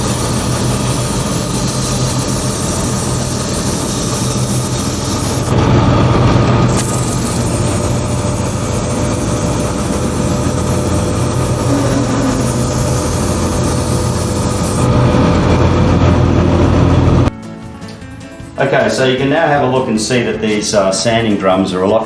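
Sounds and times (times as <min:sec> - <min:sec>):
stick scrubbing sanding drum: 0:00.0 - 0:05.6, 0:06.7 - 0:14.9
drum sander humming: 0:00.0 - 0:17.3.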